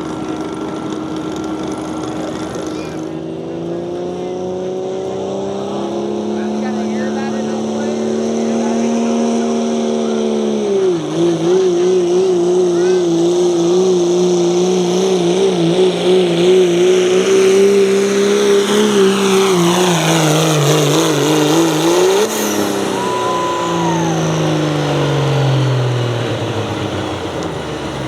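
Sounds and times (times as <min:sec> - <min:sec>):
engine at full throttle: 0:00.0 - 0:28.0
high whistle: 0:22.5 - 0:25.6.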